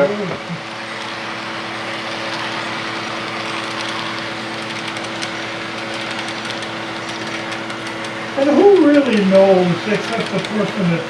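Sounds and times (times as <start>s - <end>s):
model train whirring: 0.0s - 11.0s
steady hum: 0.0s - 11.0s
faint irregular ticking: 1.0s - 11.0s.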